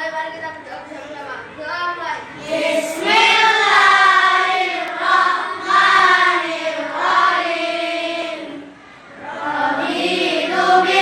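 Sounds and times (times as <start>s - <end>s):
children chanting a prayer in unison: 0.0s - 11.0s.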